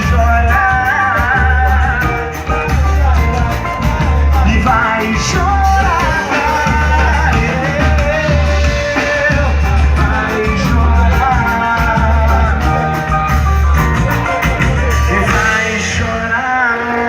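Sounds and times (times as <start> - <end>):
pulsing bass line: 0.0 - 16.6
person singing: 0.0 - 17.0
samba band playing: 0.0 - 17.0.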